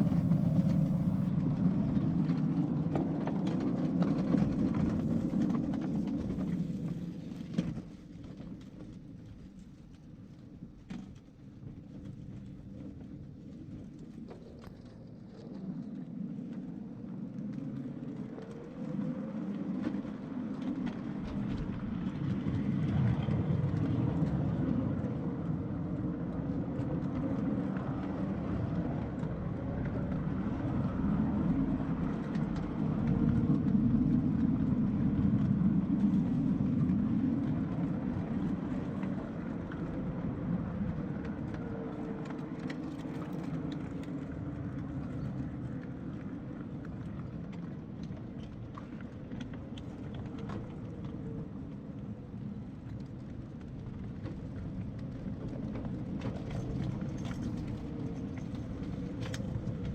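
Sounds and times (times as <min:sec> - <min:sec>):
faint motor whine: 0:00.0 - 0:01.3
wheels rumbling on rail: 0:00.0 - 0:01.4.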